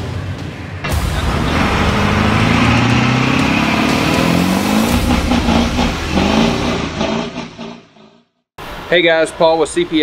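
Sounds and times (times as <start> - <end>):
engine revving: 0.8 - 8.3.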